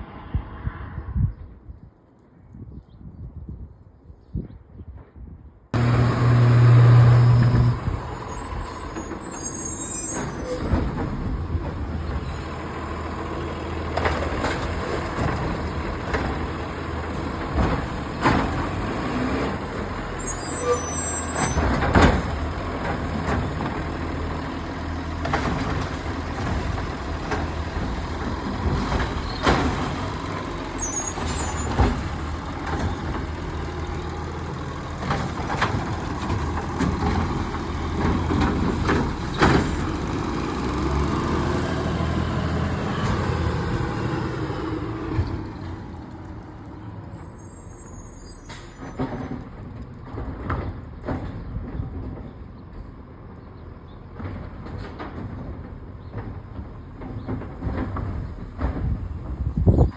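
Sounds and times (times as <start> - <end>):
garbage truck engine humming: 5.8 - 49.9
sharp clanks and knocks: 25.1 - 34.1.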